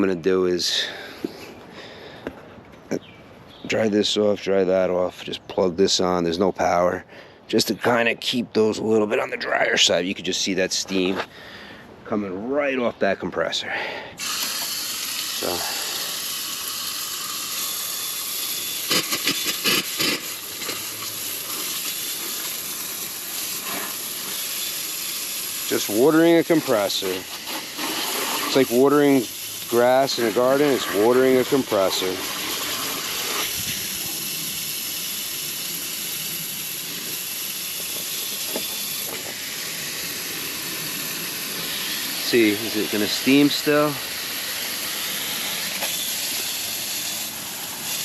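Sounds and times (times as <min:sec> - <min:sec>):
water hissing on hot metal: 0:14.2 - 0:48.0.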